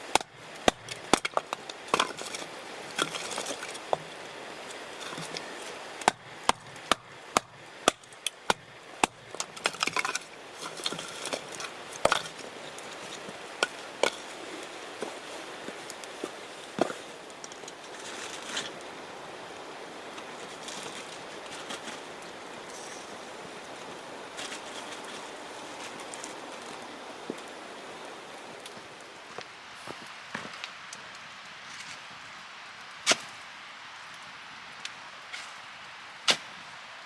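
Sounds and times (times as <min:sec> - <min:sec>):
firewood being chopped: 0:00.0 - 0:04.1, 0:06.0 - 0:10.2, 0:28.6 - 0:36.9
steady outdoor hiss: 0:00.0 - 0:37.0.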